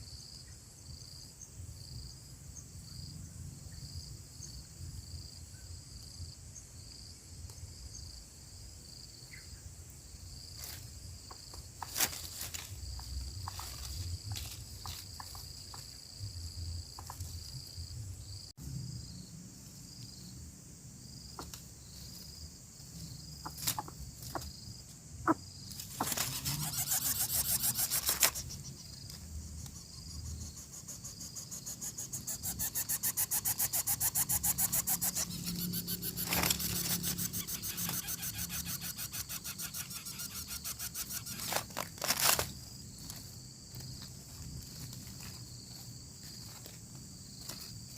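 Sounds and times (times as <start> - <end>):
crickets chirping: 0.0 - 47.9
scuffling in nest: 25.8 - 28.6, 41.2 - 42.6
nestlings begging calls: 25.8 - 28.9, 30.3 - 41.6.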